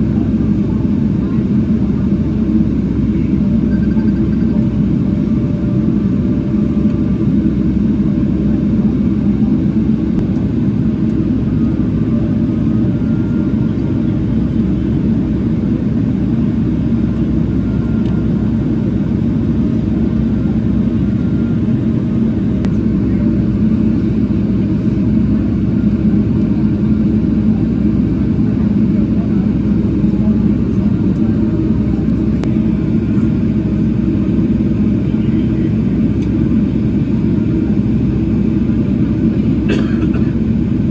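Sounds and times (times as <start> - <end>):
airliner cabin engine rumble: 0.0 - 40.9.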